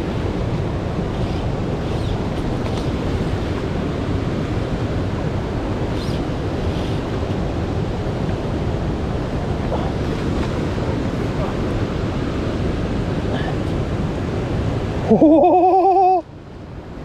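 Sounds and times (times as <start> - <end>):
rushing water: 0.0 - 17.0
wind: 0.0 - 17.0.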